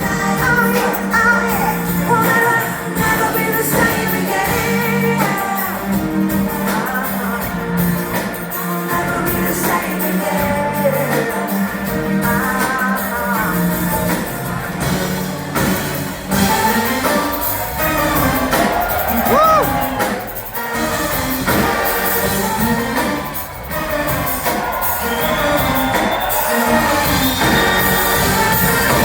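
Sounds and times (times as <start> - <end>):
woman singing: 0.0 - 14.6
live pop band: 0.0 - 29.0.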